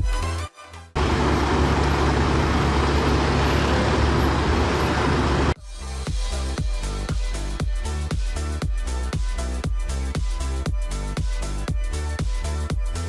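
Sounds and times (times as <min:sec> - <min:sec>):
heavy vehicle engine rumbling: 0:01.0 - 0:05.6.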